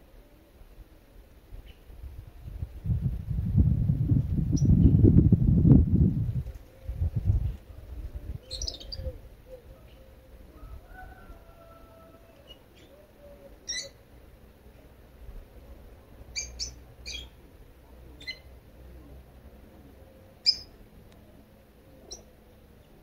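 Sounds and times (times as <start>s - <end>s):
small birds chirping: 8.4s - 10.2s, 16.3s - 17.4s, 20.1s - 20.8s, 21.8s - 23.0s.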